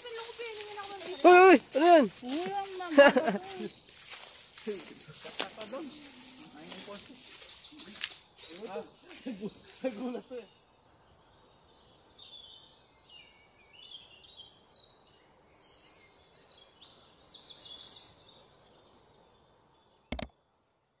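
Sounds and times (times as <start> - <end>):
small birds chirping: 0.0 - 20.6
sharp click: 20.1 - 20.3.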